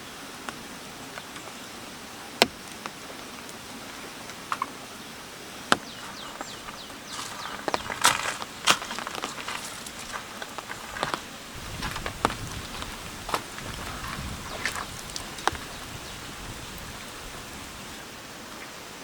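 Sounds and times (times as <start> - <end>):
crackling rustling handling noise: 5.8 - 18.0.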